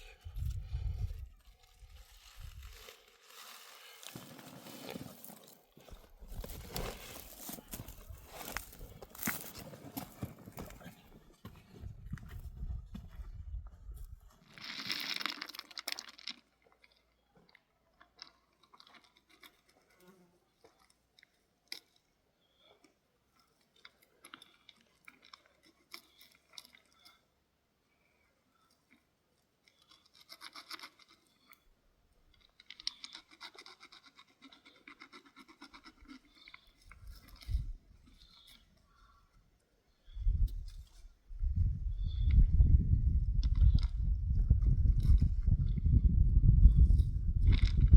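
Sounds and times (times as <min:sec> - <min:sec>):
scratchy rustling and crunching: 0:00.2 - 0:11.1.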